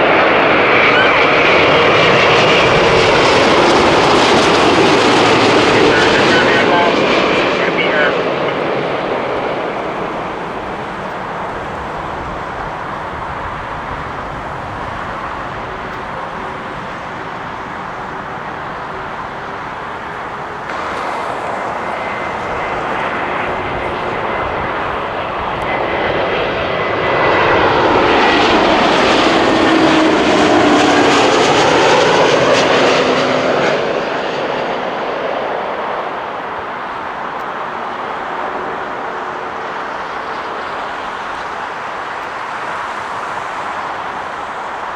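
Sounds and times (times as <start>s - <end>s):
jet airliner passing: 0.0s - 44.9s
engine tones sliding down: 0.3s - 32.5s.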